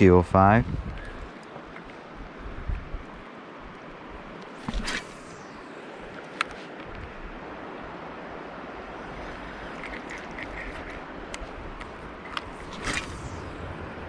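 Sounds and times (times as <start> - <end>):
mountain stream rushing: 3.1 - 14.0.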